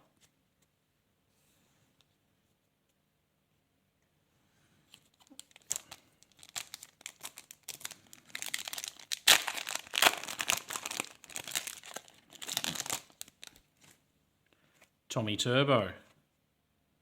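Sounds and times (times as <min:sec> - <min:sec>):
wrapper crinkling and tearing: 0:04.9 - 0:14.0.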